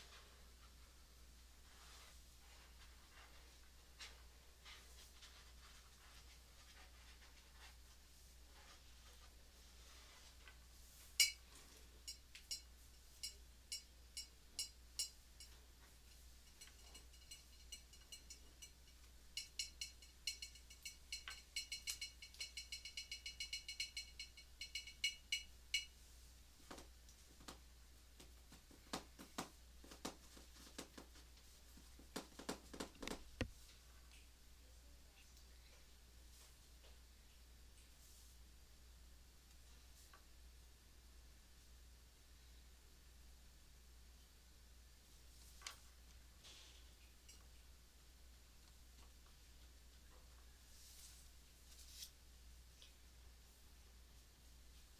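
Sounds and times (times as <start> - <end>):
light ringing clicks: 16.5 - 25.9.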